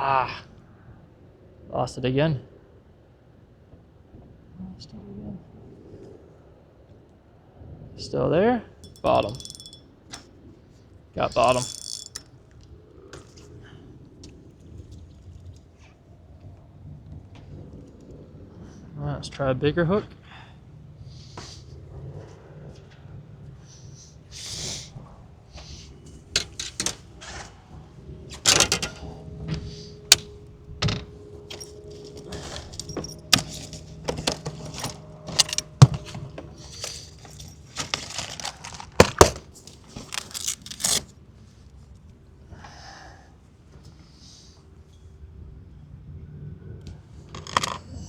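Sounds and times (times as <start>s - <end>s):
fishing tackle clicking and jingling: 8.8s - 9.8s, 11.2s - 12.3s, 28.5s - 29.0s, 30.1s - 39.4s.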